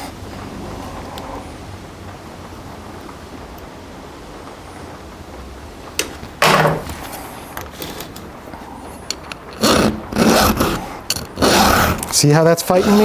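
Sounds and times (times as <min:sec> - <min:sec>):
file rasping on saw chain: 0:09.6 - 0:13.0.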